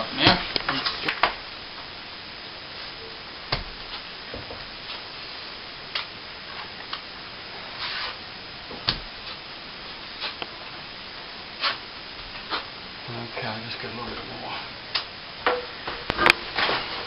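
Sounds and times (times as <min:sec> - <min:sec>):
faint steady hiss: 0:00.0 - 0:17.0
brief scrape: 0:07.8 - 0:08.2.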